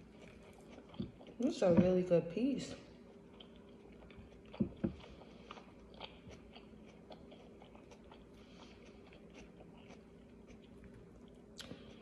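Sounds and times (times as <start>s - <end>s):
person chewing lettuce: 0.0s - 1.6s, 2.9s - 12.0s.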